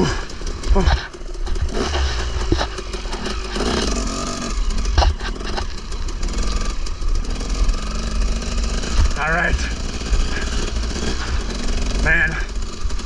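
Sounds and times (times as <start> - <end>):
dirt bike engine rumbling: 0.0 - 13.0
sharp engine knocks: 8.6 - 10.4.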